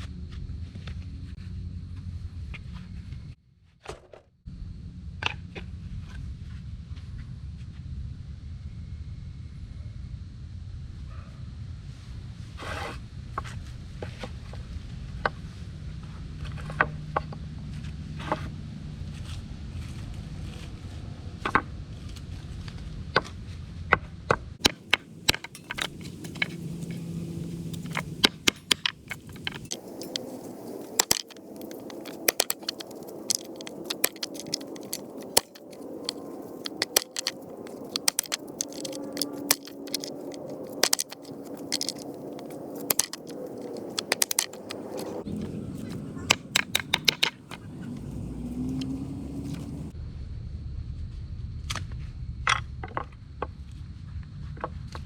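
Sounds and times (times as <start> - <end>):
wood fire crackling and popping: 24.6 - 47.6
low rumble: 24.6 - 54.4.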